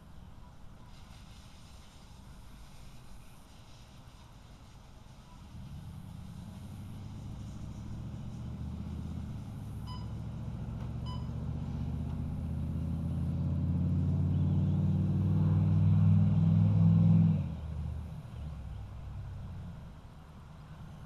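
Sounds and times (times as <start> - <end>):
vehicle engine running: 5.2 - 21.0
short beeps: 9.9 - 10.2, 11.0 - 11.4.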